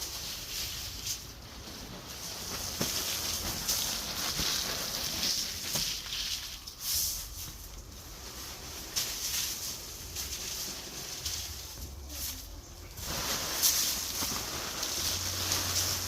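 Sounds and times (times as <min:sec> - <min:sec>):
dry bedding rustling and scraping: 0:00.0 - 0:16.0.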